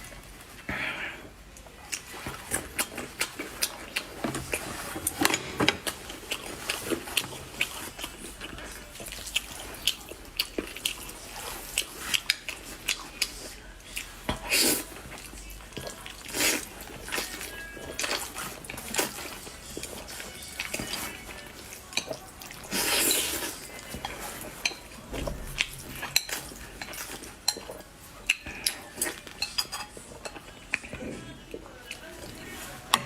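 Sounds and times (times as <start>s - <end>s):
chewing noises: 1.5s - 33.0s
utensils clinking against dishes: 14.3s - 31.2s.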